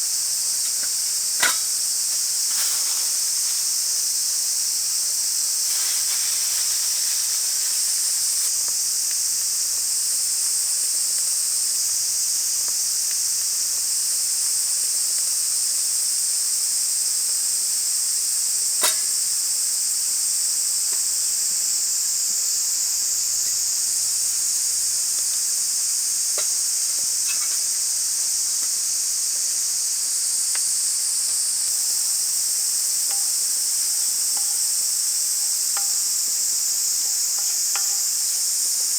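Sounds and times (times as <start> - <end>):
insects chorus: 0.0 - 38.9
sharp crack: 18.8 - 19.2.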